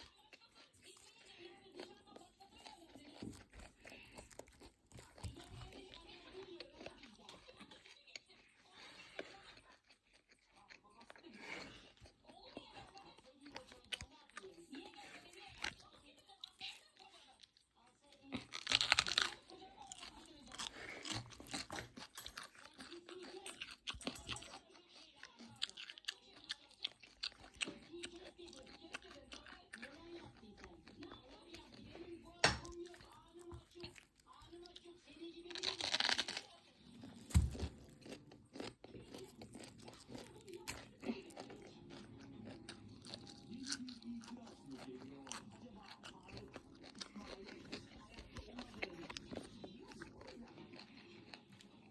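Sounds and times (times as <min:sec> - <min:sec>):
chewing with crisp crackles: 0:00.0 - 0:51.9
crunchy bite into cabbage: 0:18.3 - 0:24.4, 0:35.5 - 0:51.9.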